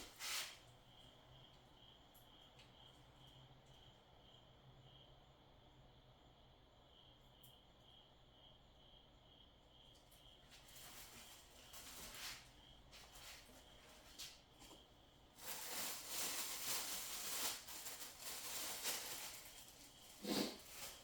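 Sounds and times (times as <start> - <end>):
packaging rustling: 15.4 - 21.0.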